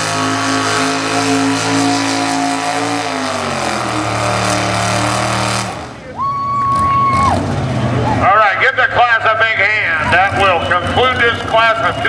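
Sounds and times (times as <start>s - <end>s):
truck engine revving loud: 0.0s - 12.0s.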